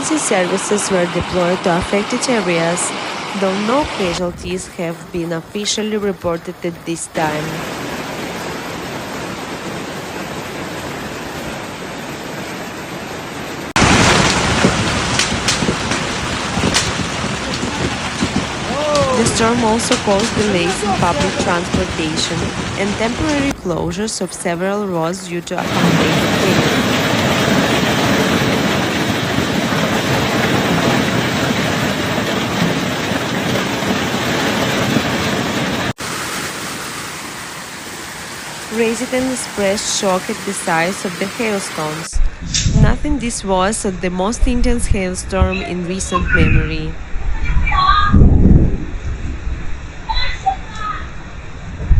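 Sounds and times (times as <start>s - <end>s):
hail and rain pelting: 6.9s - 42.1s
sharp hailstone hits: 13.8s - 20.5s.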